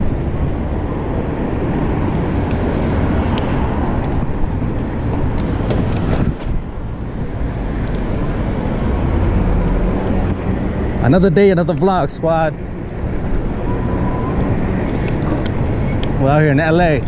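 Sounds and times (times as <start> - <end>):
wind buffeting microphone: 0.0 - 11.2
city street traffic: 0.0 - 17.0.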